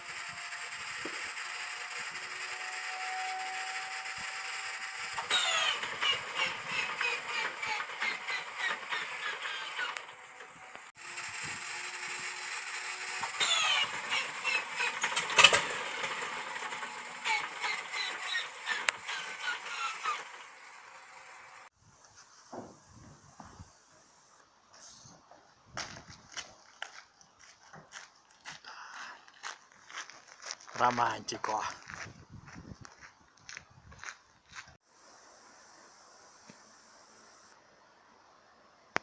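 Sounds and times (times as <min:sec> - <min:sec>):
inertia starter whine: 0:00.0 - 0:21.7
radial engine cranking: 0:00.0 - 0:21.7.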